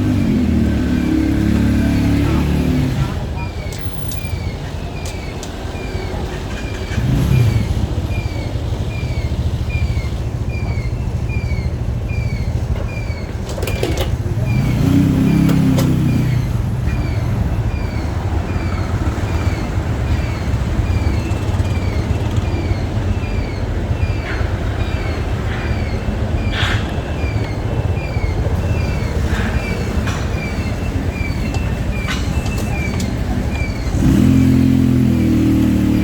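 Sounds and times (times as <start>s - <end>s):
motorcycle engine and road rumble: 0.0s - 36.0s.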